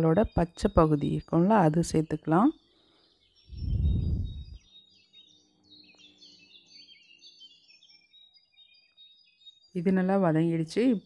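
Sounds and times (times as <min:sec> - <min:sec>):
birds chirping faintly: 0:00.0 - 0:11.0
loud low muffled rumble: 0:03.6 - 0:04.6.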